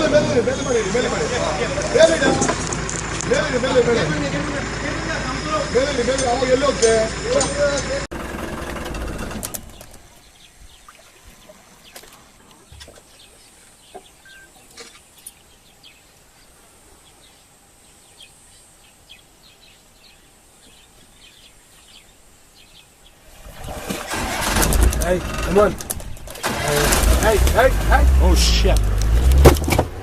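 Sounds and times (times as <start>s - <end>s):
faint bird chirps: 9.8s - 23.2s
sharp clicks: 28.7s - 29.7s.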